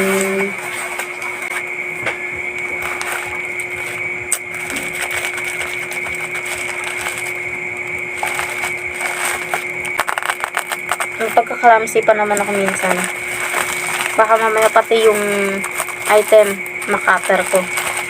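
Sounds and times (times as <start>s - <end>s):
utility knife scraping plastic packaging: 2.8s - 7.4s, 8.1s - 18.0s
steady high tone: 11.0s - 18.0s.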